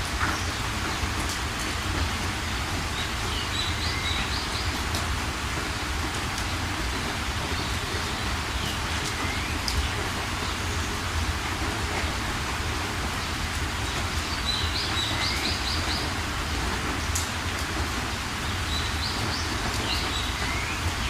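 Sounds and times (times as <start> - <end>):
steady rain falling: 0.0 - 21.0
small birds chirping: 13.2 - 16.2.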